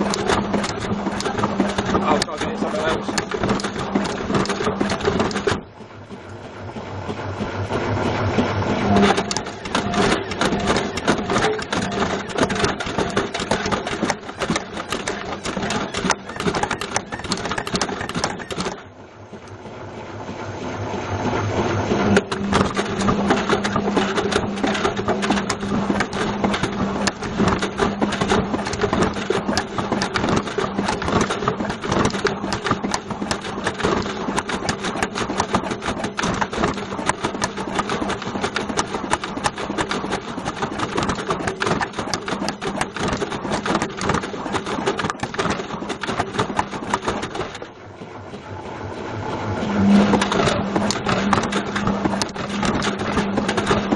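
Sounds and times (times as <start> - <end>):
object rattling in washing drum: 0.0 - 5.7, 8.4 - 18.8, 22.1 - 47.8, 49.8 - 53.9
washing machine motor hum: 0.0 - 53.9.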